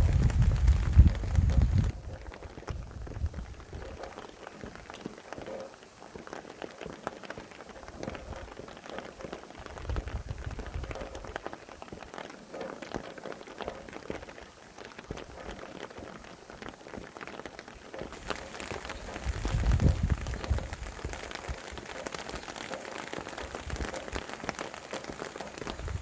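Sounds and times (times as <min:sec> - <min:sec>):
low rumble of wind: 0:00.0 - 0:04.2, 0:09.6 - 0:11.4, 0:18.1 - 0:22.5, 0:25.5 - 0:26.0
rain drops ticking on a surface: 0:00.0 - 0:26.0.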